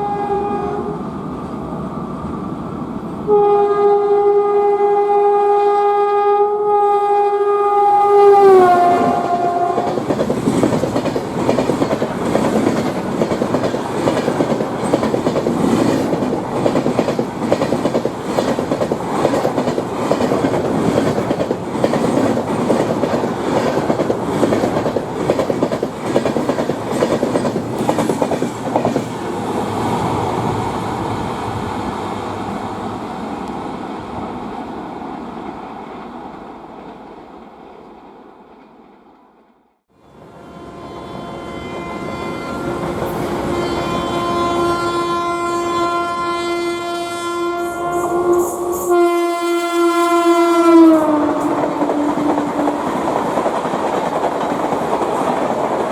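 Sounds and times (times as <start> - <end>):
train horn: 0.0 - 1.0, 3.3 - 10.1, 39.9 - 53.2
train wheels clattering on track: 9.1 - 29.8, 51.2 - 55.9.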